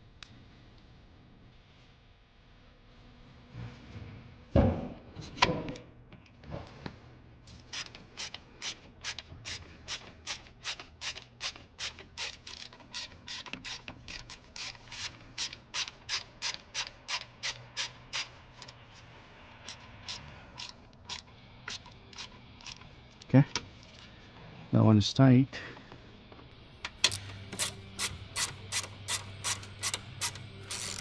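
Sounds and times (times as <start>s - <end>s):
hand ratchet clicking: 26.9s - 31.0s.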